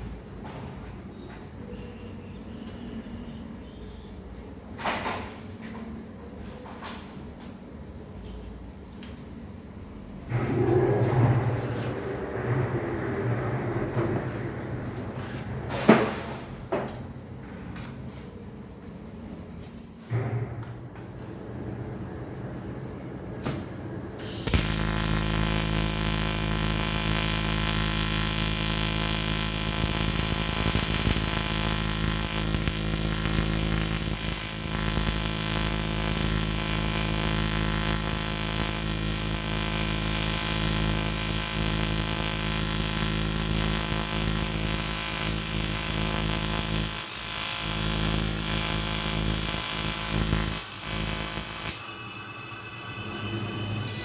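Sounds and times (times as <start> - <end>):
welding arc buzzing and hissing: 24.2 - 54.0.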